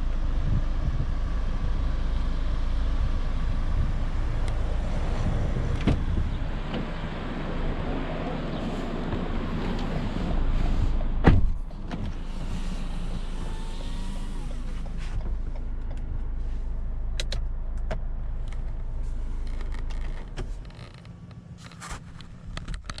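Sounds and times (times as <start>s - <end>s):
car engine idling: 0.0s - 23.0s
sharp thump: 11.2s - 11.6s.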